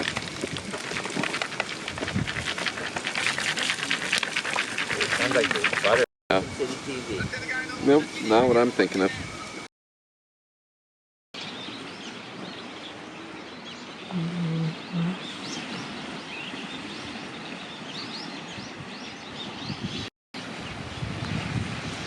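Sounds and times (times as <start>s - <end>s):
rush of wind or water: 0.0s - 9.7s, 15.2s - 22.0s
small birds chirping: 11.4s - 20.1s.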